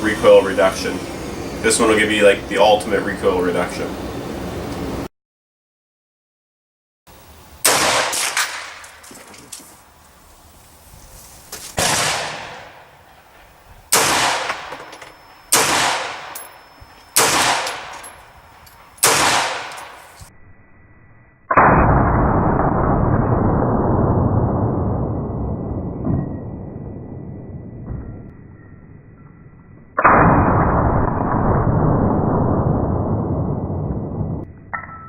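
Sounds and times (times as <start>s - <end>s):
loud steady noise: 0.0s - 5.1s
rifle shots with ringing echo: 7.6s - 9.2s, 11.8s - 13.3s, 13.9s - 20.2s, 30.0s - 32.4s.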